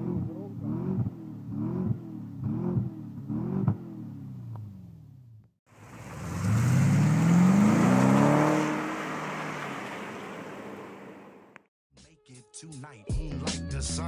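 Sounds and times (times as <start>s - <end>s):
car engine accelerating hard: 5.8s - 11.6s.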